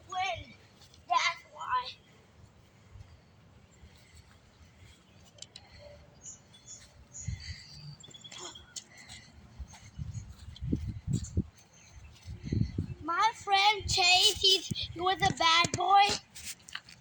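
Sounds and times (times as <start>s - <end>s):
birds chirping: 0.0s - 15.2s
wind rumble on microphone: 9.6s - 13.1s.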